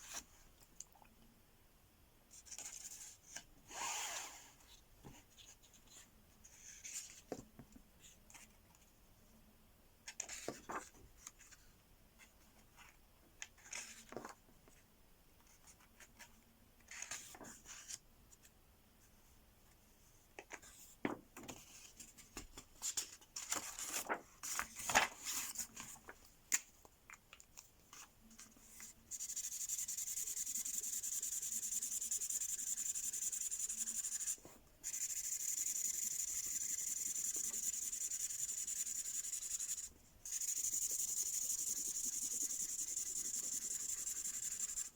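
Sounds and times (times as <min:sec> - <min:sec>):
marker scribbling on paper: 0:29.1 - 0:44.9.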